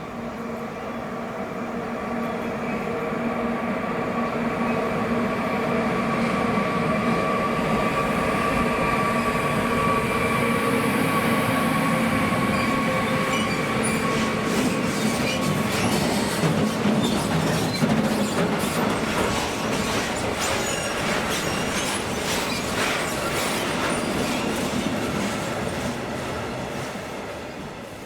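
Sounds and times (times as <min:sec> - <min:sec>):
train whine: 0:00.0 - 0:28.0
train wheels rumbling: 0:06.0 - 0:28.0.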